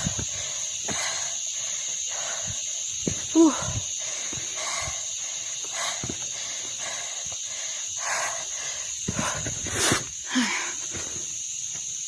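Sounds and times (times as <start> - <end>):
person breathing hard: 0.0 - 11.4
footsteps and scuffs on rock: 2.2 - 7.0, 9.0 - 10.0.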